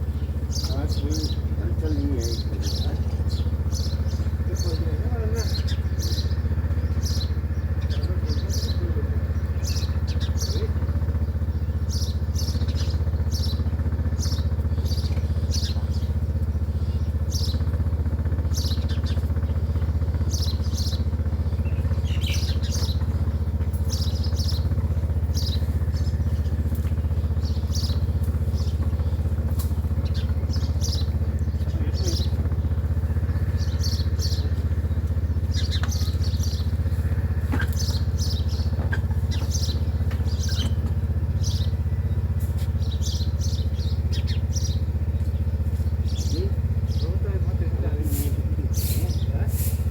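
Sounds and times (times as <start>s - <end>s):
bird chirping: 0.0s - 49.9s
steady low hum: 0.0s - 49.9s.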